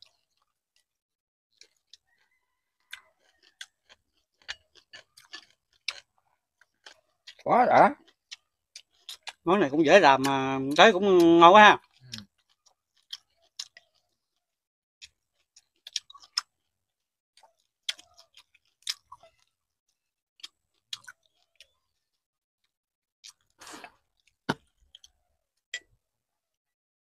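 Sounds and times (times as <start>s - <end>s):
chewing mouth smacks: 1.6s - 7.4s, 8.0s - 9.4s, 11.8s - 14.2s, 15.0s - 16.6s, 17.4s - 19.5s, 20.4s - 21.7s.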